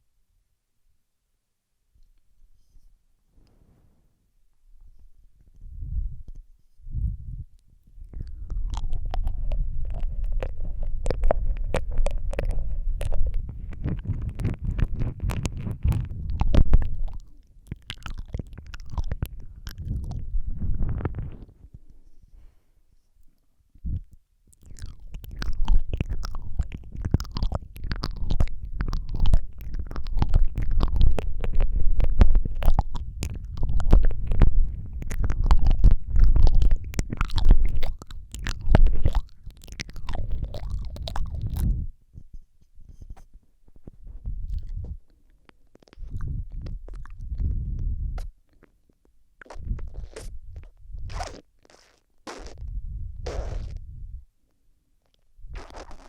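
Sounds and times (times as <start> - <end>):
breath rumble on microphone: 2.5 - 4.2, 4.8 - 23.1, 23.8 - 48.7, 49.4 - 54.3, 55.4 - 56.0
lip smacks and tongue clicks: 7.5 - 22.2, 23.2 - 41.8, 43.8 - 52.7, 55.0 - 56.0.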